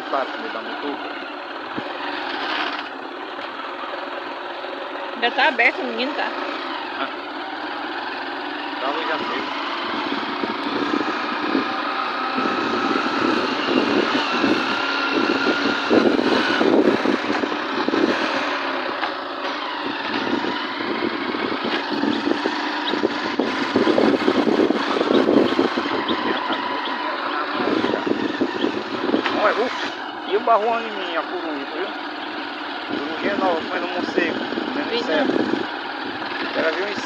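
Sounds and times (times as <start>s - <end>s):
motorcycle engine running: 0.0s - 37.0s
rushing wind noise: 9.8s - 18.9s, 19.7s - 27.0s, 27.6s - 29.6s.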